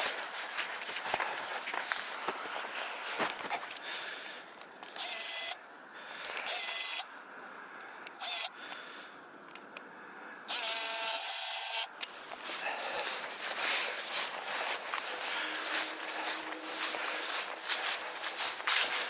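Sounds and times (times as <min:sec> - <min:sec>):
faint outdoor background noise: 0:00.0 - 0:19.0
small electric motor whining: 0:04.9 - 0:05.6, 0:06.4 - 0:07.1, 0:08.2 - 0:08.6, 0:10.5 - 0:11.9.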